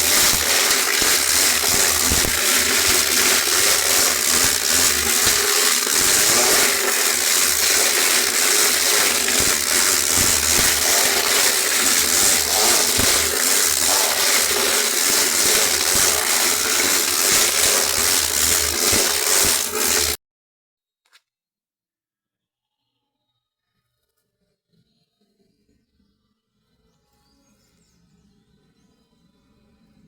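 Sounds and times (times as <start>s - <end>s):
clicks and rattles: 0.0s - 20.2s
machine grinding: 0.0s - 20.2s.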